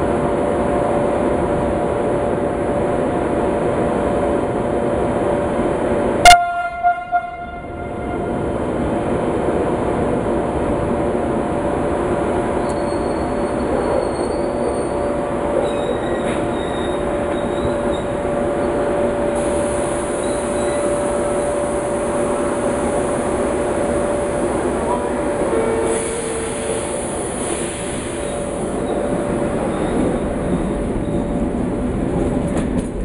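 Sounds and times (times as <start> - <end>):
train rumbling slowly: 0.0 - 33.0
wheel squeal: 12.6 - 18.2, 20.2 - 20.9, 28.2 - 31.4.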